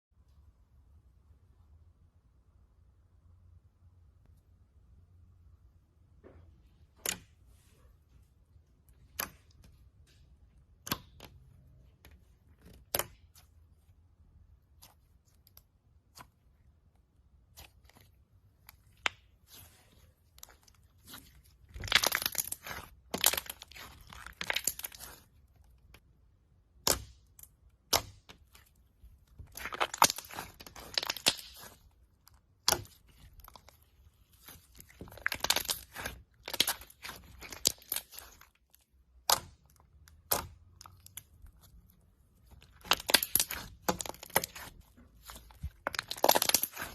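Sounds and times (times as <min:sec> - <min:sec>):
slime popping and crackling: 0:14.6 - 0:46.9.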